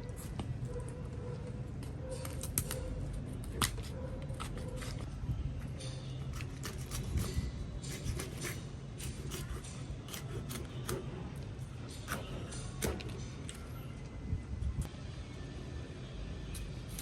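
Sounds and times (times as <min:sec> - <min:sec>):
steady low hum: 0:00.0 - 0:17.0
knife scraping fish: 0:02.1 - 0:05.1, 0:06.2 - 0:11.1.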